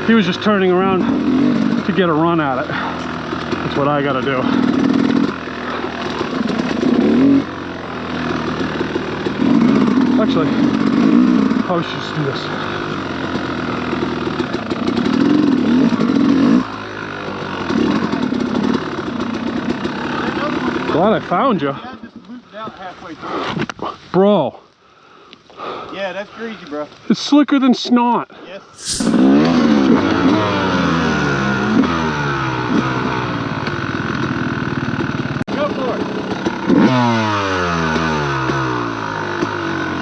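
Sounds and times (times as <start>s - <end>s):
dirt bike engine revving: 0.0s - 21.8s, 28.8s - 40.0s.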